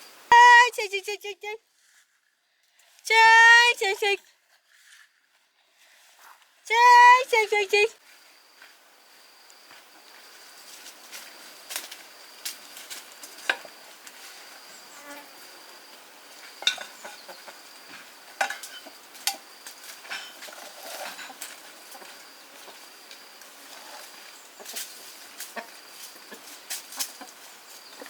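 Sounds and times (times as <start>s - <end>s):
high insect drone: 6.7s - 28.0s.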